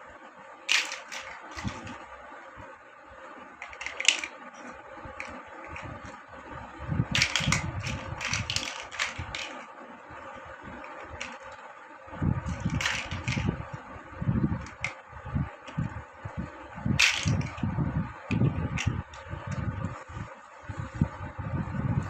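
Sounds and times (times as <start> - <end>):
plastic bricks clicking and rattling: 0.7 - 2.0, 3.6 - 6.2, 7.1 - 9.6, 10.8 - 11.6, 12.5 - 13.5, 14.6 - 15.0, 17.0 - 17.6, 18.3 - 19.2.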